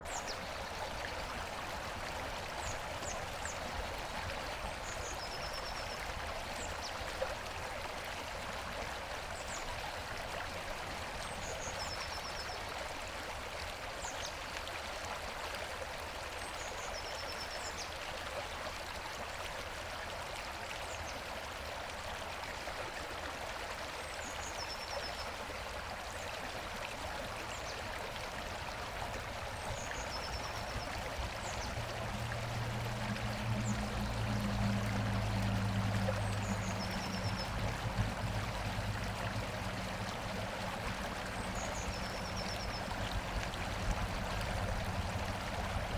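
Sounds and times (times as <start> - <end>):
river rushing over rocks: 30.5 - 45.9.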